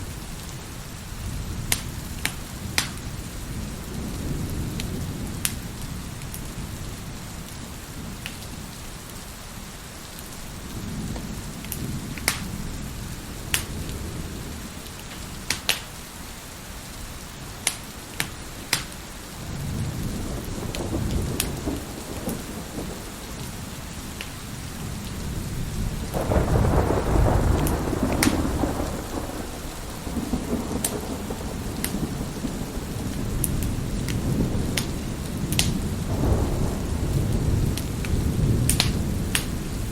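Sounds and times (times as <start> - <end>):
wood fire crackling: 0.0 - 3.9, 11.2 - 25.2, 26.0 - 39.9
steady rain: 0.0 - 39.9
fire sharp pops: 1.7 - 3.0, 11.7 - 12.5, 13.5 - 13.8, 15.1 - 16.0, 17.6 - 19.0, 27.6 - 28.6, 37.7 - 39.6
thunder rolling: 19.4 - 23.7, 24.8 - 39.9.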